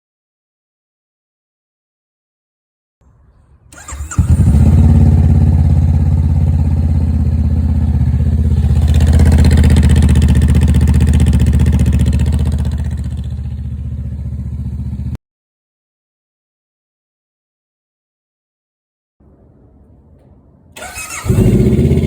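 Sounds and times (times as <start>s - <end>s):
motorcycle engine idling: 3.8s - 15.2s, 20.8s - 22.0s.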